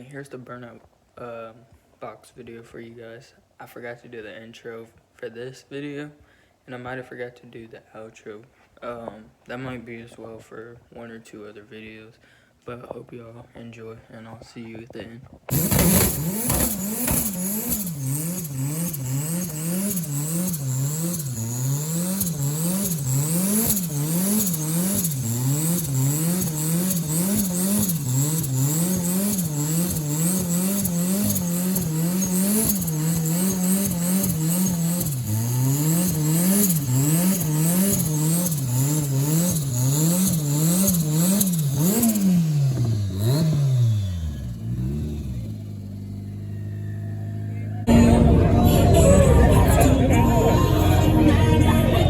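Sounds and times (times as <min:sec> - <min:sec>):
car engine revving: 0:15.5 - 0:52.0.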